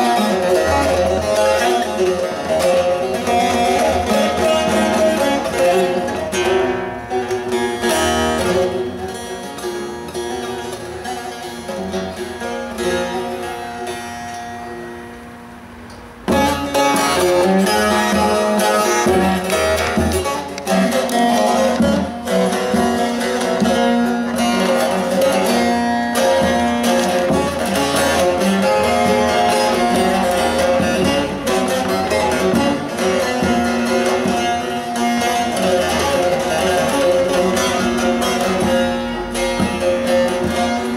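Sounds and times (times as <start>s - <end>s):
plucked lute melody: 0.0s - 40.9s.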